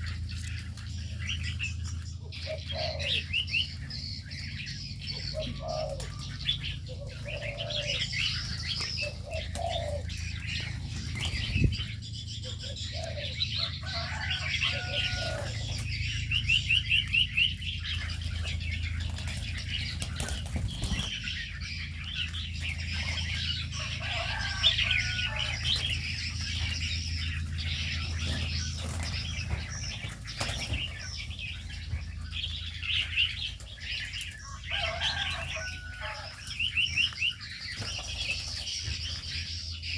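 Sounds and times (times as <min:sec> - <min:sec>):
birds chirping and trilling: 0:00.0 - 0:39.9
steady low hum: 0:00.0 - 0:39.9
wings flapping: 0:18.0 - 0:21.6, 0:22.2 - 0:32.2.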